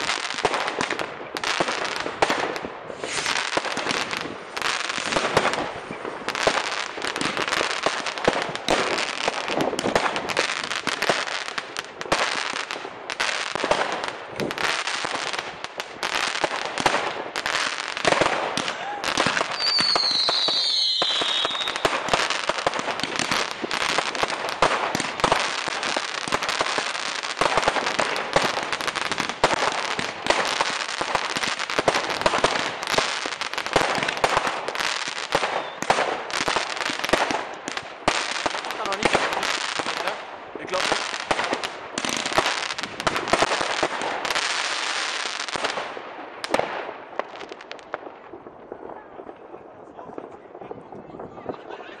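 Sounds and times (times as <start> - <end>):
fireworks crackling and banging: 0.0 - 52.0
falling firework whistle: 18.6 - 22.0, 35.5 - 35.9.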